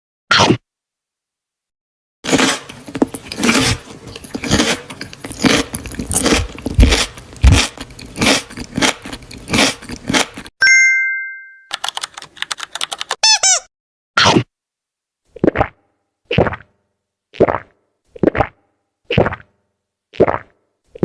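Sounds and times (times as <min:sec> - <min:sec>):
biting and chewing: 0:02.2 - 0:10.5.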